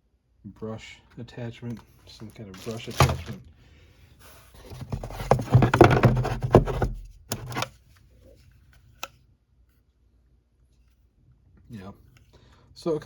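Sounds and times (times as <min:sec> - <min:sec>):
plastic parts rattling: 0:02.6 - 0:03.4, 0:04.6 - 0:07.7.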